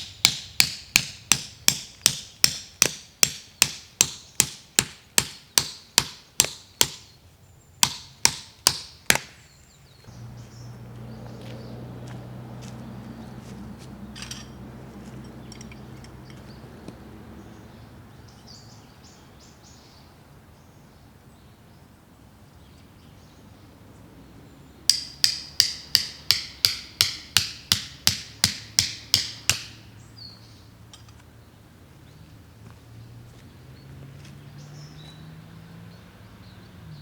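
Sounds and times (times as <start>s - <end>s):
hammer striking metal stake: 0.0s - 7.1s, 7.8s - 9.4s, 14.1s - 16.4s, 24.9s - 29.9s
low hum: 10.1s - 16.7s.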